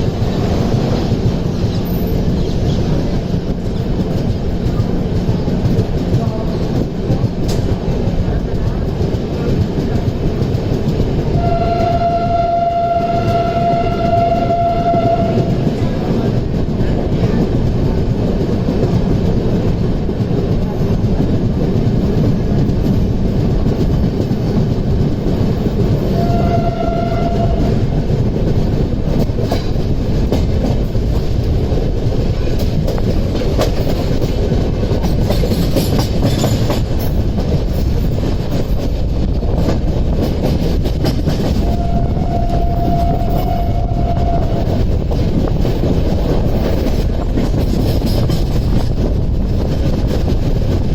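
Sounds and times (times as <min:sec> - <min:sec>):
train wheels rumbling on rails: 0:00.0 - 0:50.9
train horn blasts: 0:11.3 - 0:15.7, 0:26.1 - 0:27.9, 0:41.6 - 0:44.8.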